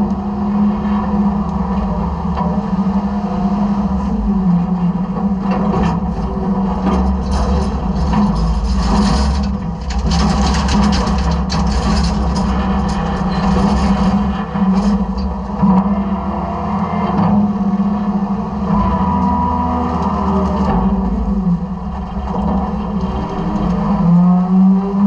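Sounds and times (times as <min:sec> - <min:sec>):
garbage truck engine humming: 0:00.0 - 0:24.3
rattling in hopper: 0:05.5 - 0:24.0.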